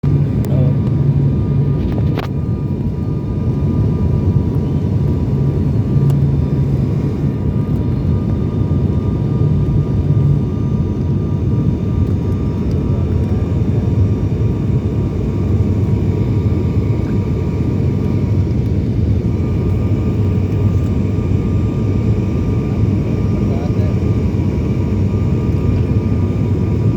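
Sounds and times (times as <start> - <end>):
airliner cabin engine rumble: 0.0 - 26.9.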